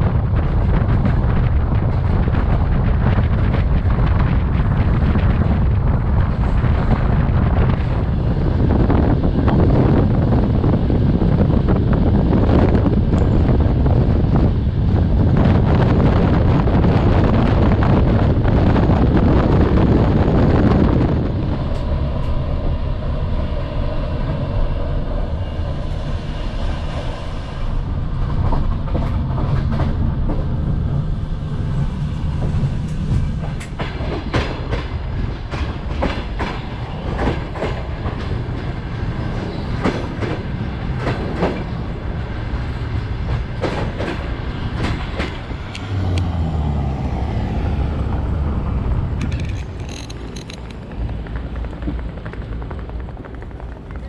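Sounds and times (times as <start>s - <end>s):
rushing wind: 0.0s - 54.0s
train carriage rumble: 0.0s - 54.0s
wheels clicking over rail joints: 48.0s - 54.0s.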